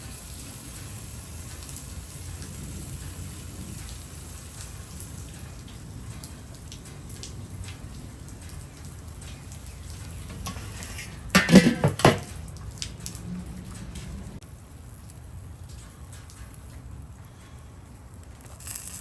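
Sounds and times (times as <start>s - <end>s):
chicken sizzling on a grill: 0.0s - 6.4s, 18.4s - 19.0s
cookware clatter: 10.3s - 12.4s.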